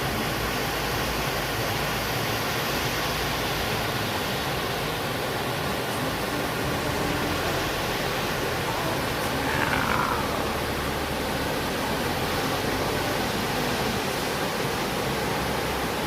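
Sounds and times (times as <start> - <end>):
waterfall rushing water: 0.0 - 16.0
high sliding downward sound: 5.7 - 14.6.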